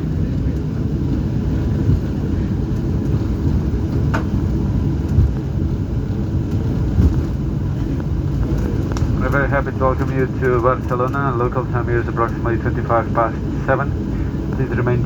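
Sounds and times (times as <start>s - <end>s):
aircraft cabin low rumble: 0.0s - 15.0s.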